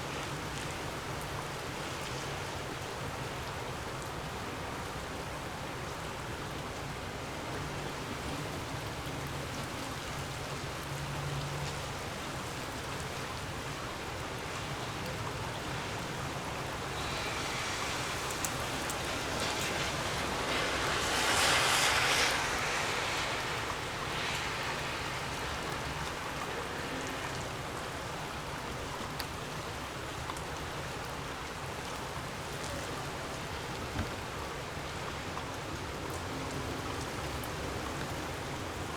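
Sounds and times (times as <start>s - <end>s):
gusty wind blowing: 15.5s - 27.0s.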